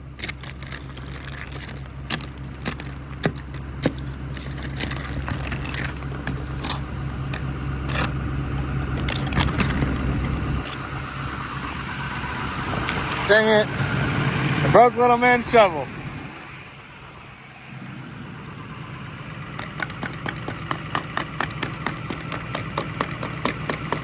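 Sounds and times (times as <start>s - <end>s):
diesel truck engine idling: 0.0s - 24.0s
shovel scraping ice: 0.2s - 10.9s.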